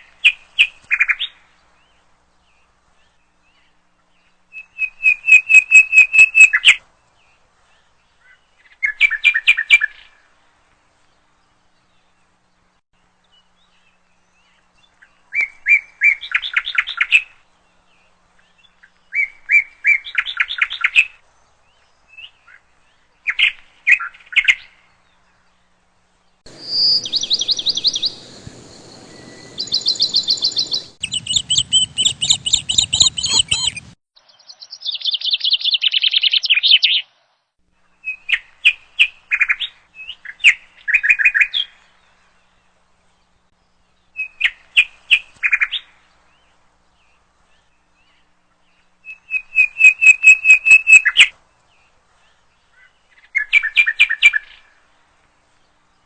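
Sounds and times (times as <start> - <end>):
low rumbling noise: 25.7 - 34.0
high chirping trills: 26.5 - 34.0.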